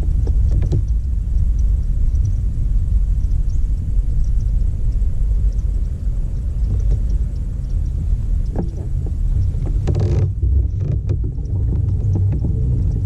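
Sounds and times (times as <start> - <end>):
hull knocks and creaks: 0.0 - 2.5, 3.2 - 13.0
steady low rumble: 0.0 - 13.0.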